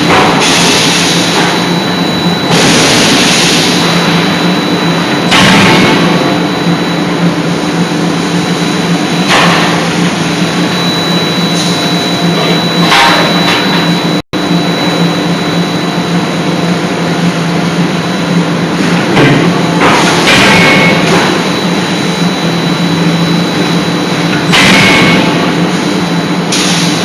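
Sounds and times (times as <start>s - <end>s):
forging machinery hum: 0.0s - 27.0s.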